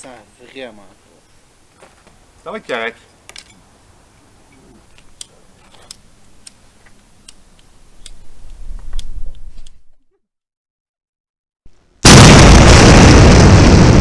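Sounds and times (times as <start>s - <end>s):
campfire crackling: 0.0s - 10.0s.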